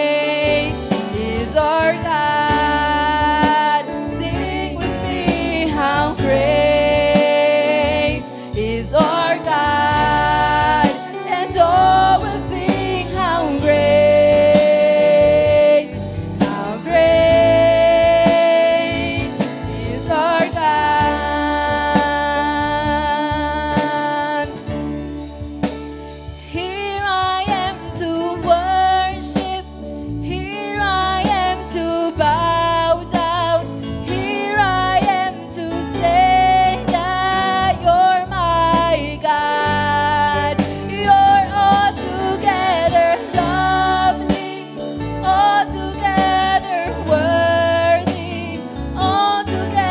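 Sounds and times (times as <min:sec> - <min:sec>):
singing with long held notes: 0:00.0 - 0:24.7, 0:34.1 - 0:49.9
band accompaniment: 0:00.0 - 0:49.9.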